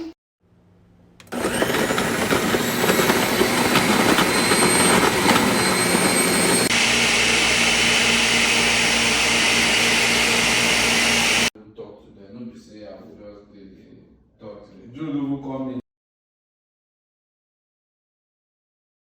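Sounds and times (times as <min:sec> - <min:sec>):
blender motor whirring: 0:01.2 - 0:11.5
blender pitcher rattling: 0:01.3 - 0:06.7.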